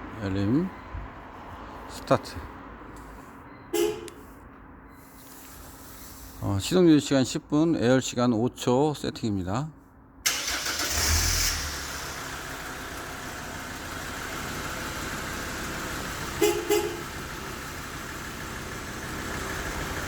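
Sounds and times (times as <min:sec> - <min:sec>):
car horn beeps: 0:03.6 - 0:04.3, 0:16.4 - 0:17.1
car engine starting and idling: 0:10.2 - 0:20.0.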